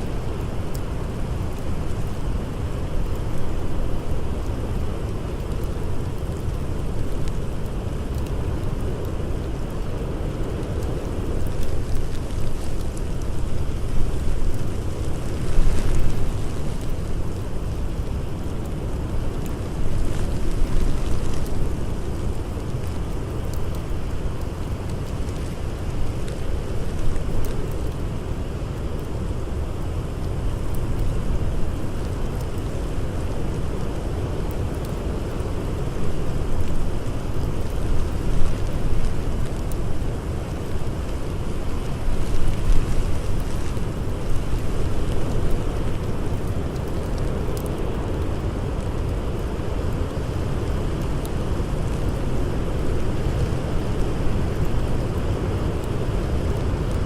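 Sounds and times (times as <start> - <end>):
blizzard wind blowing: 0.0 - 57.0
campfire crackling: 0.0 - 57.0.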